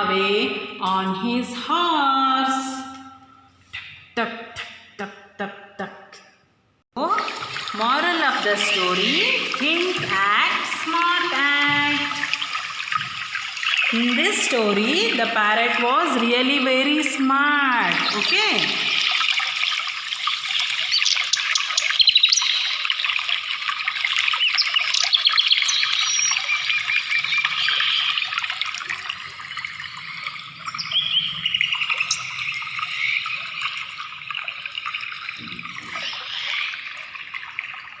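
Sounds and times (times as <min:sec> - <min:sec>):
small birds chirping: 0:07.8 - 0:15.3, 0:17.7 - 0:28.6, 0:29.5 - 0:34.3, 0:35.3 - 0:37.1.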